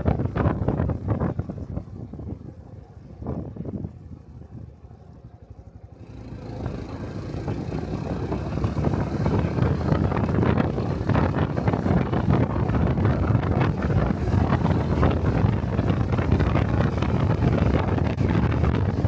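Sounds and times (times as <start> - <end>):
wind noise: 0.0 - 4.7, 6.3 - 19.0
motorcycle engine pulling away: 5.9 - 19.0.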